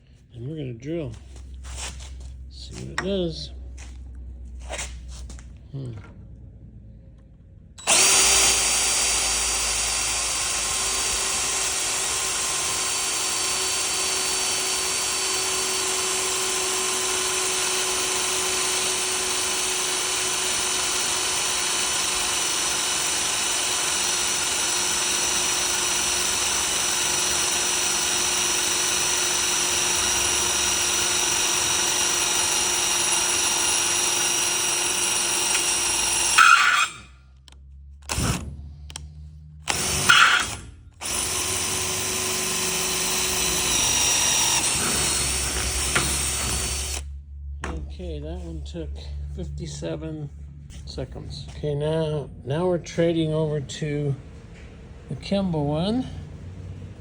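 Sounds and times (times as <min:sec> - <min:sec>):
power drill boring into metal: 0:07.8 - 0:37.1, 0:38.0 - 0:38.5, 0:39.6 - 0:47.1.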